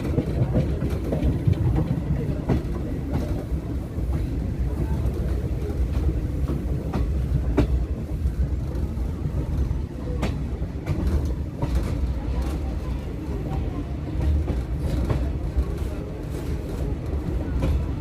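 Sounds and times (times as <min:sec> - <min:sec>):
train rumble: 0:00.0 - 0:18.0.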